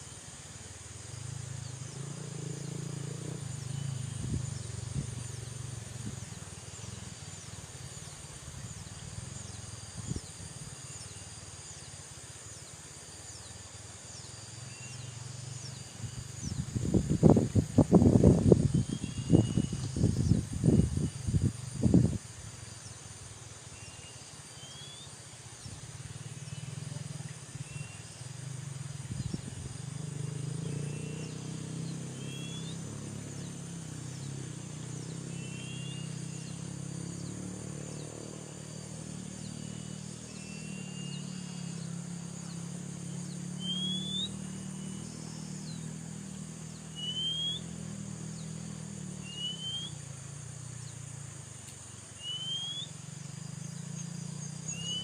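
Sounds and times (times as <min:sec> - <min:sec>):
high insect drone: 0:00.0 - 0:55.0
bird whistled chirps: 0:18.8 - 0:20.0, 0:32.1 - 0:32.8, 0:35.4 - 0:36.2, 0:40.3 - 0:41.5, 0:43.6 - 0:45.0, 0:46.9 - 0:47.7, 0:49.3 - 0:50.0, 0:52.2 - 0:53.0, 0:54.7 - 0:55.0.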